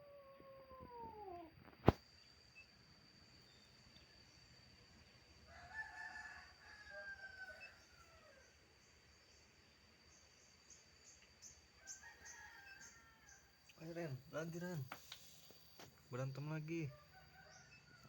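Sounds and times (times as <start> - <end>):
rooster crowing faintly: 5.5 - 8.6, 16.7 - 18.0.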